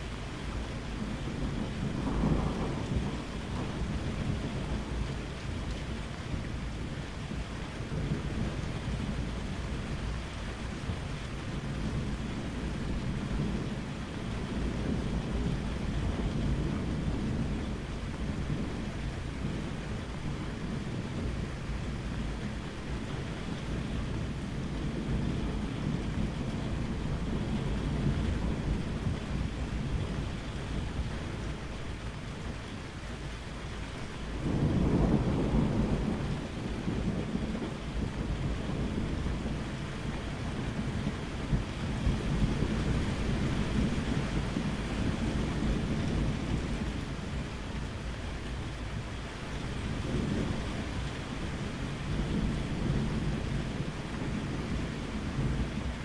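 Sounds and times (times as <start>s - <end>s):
steady rain: 0.0s - 56.0s
rolling thunder: 1.0s - 32.6s, 34.3s - 56.0s
thunder clap: 1.9s - 5.0s.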